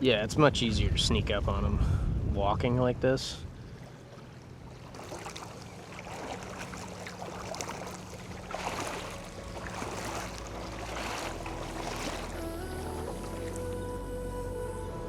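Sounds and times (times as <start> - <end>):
wading through water: 3.3 - 14.2
background music: 8.4 - 15.0.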